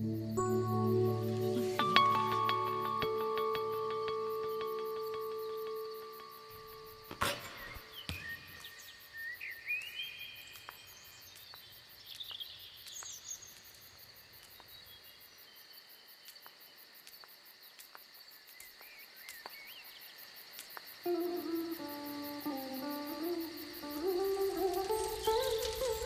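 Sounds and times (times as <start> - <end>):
insects droning: 0.0 - 26.0
light ticks: 9.8 - 14.8
birds chirping: 24.1 - 26.0.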